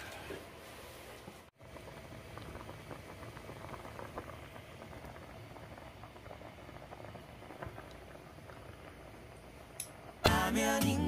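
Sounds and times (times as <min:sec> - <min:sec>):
pot bubbling with pops: 0:01.5 - 0:10.8.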